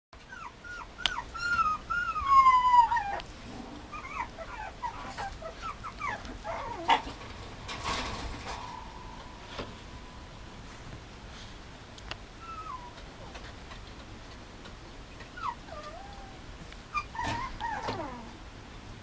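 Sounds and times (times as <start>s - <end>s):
puppy whimpering: 0.2s - 3.2s, 3.9s - 7.1s, 12.4s - 13.1s, 15.3s - 18.4s.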